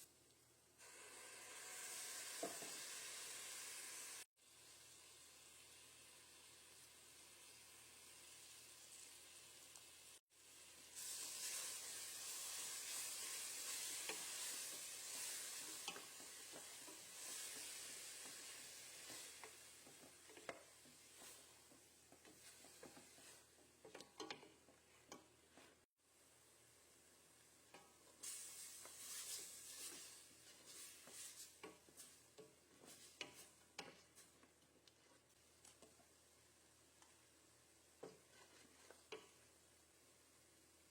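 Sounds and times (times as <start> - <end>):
food sizzling in a pan: 0.0 - 40.9
utensil clicking and scraping a pan: 11.0 - 25.8, 27.7 - 36.1, 38.0 - 39.5.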